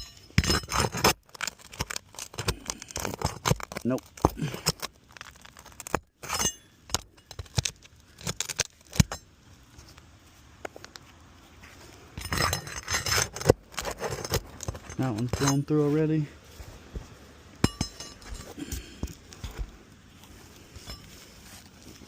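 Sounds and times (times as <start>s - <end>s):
metal tool clinking on nails: 17.6s - 18.6s.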